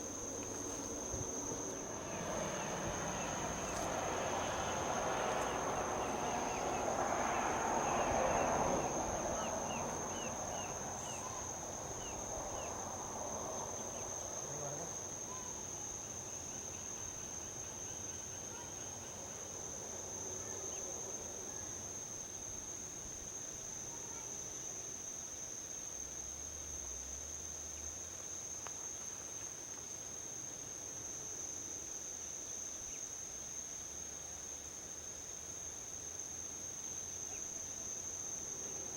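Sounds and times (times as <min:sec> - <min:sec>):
passing vehicle road noise: 0:00.0 - 0:15.2
insects trilling: 0:00.0 - 0:38.9.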